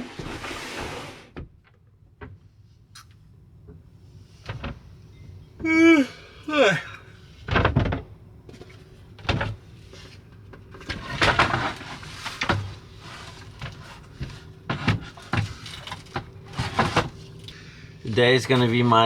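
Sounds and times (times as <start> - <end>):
short scrape: 0.0 - 1.3
knocks and clatters: 10.5 - 17.5.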